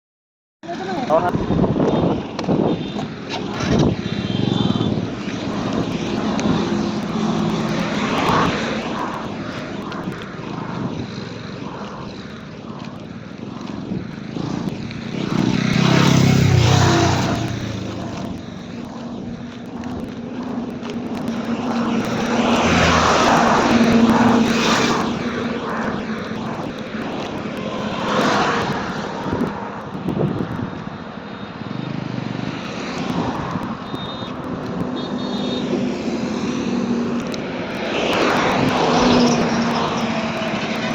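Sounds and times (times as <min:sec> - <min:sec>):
motorcycle engine running: 0:00.7 - 0:29.2
wind rushing: 0:00.8 - 0:31.6, 0:32.2 - 0:40.9.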